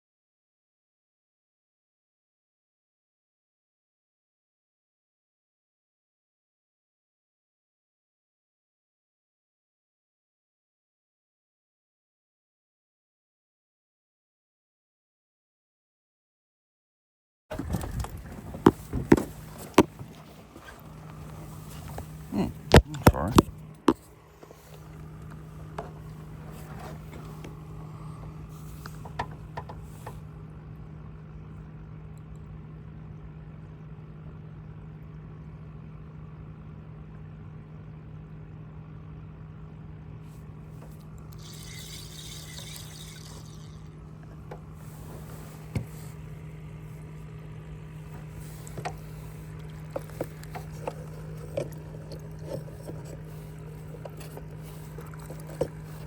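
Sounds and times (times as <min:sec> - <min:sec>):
water trickling against boat: 0:17.5 - 0:30.2, 0:40.8 - 0:56.0
boat low hum: 0:17.5 - 0:56.0
hissing rattle: 0:41.4 - 0:43.8.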